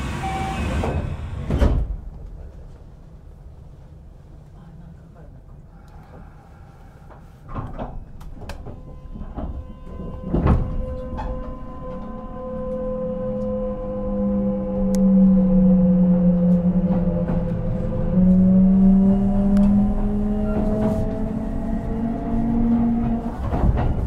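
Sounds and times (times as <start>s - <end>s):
train doors shutting: 0.0s - 2.2s, 7.1s - 24.0s.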